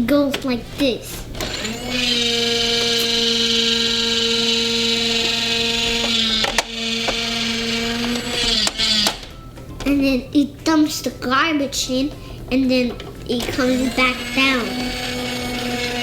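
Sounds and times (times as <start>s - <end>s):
small electric motor whining: 1.3s - 9.3s, 13.4s - 16.0s.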